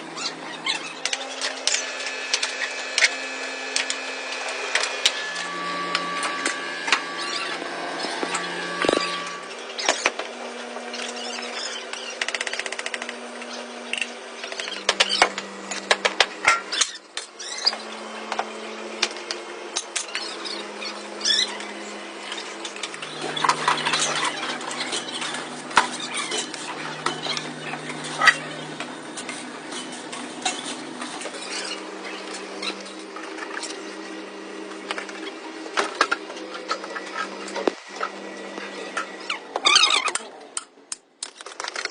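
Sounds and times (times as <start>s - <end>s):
low machine hum: 0.0s - 40.9s.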